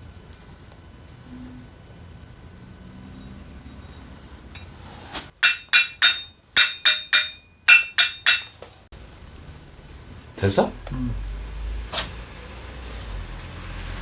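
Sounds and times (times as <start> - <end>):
hammer tapping metal: 5.3 - 8.7.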